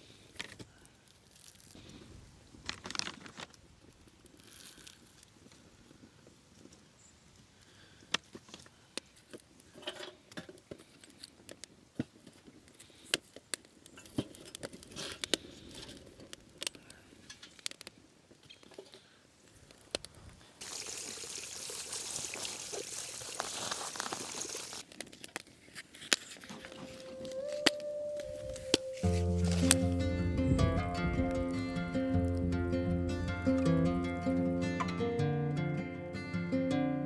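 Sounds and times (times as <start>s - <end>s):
steady hiss: 20.6s - 24.8s.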